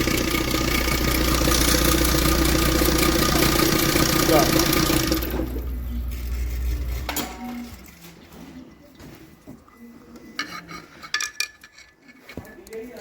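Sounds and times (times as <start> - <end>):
petrol engine switching off: 0.0 - 8.0.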